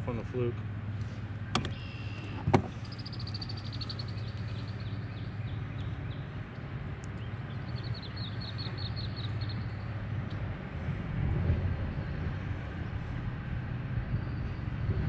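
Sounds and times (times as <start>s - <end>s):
steady low hum: 0.0s - 15.0s
songbird trilling: 1.7s - 6.4s, 7.2s - 9.8s.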